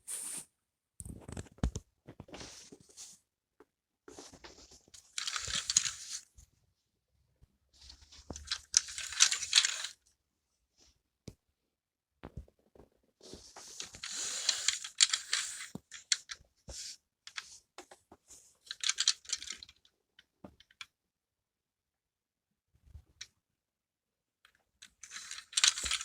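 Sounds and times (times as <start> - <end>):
plastic parts clicking and rattling: 4.2 - 6.3, 7.8 - 10.0, 13.4 - 20.9, 24.5 - 26.0
plastic toy scraping: 4.2 - 6.3, 7.9 - 10.0, 13.2 - 17.6, 24.9 - 26.0.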